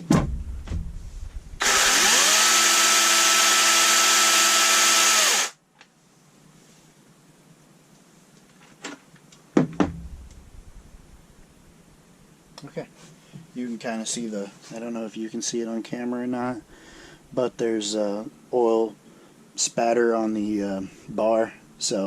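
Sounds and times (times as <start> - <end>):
chainsaw motor whine: 1.6 - 5.6
sharp knocks: 9.6 - 10.5.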